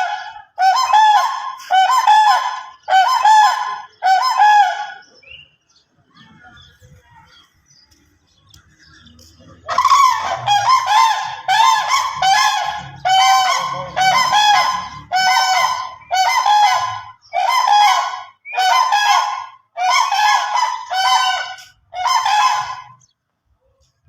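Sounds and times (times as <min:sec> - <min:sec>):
cranes calling: 0:00.0 - 0:23.2.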